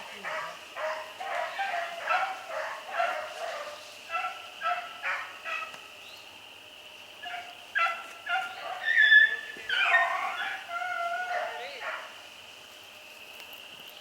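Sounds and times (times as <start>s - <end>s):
hounds baying: 0.1s - 5.8s, 7.2s - 12.2s.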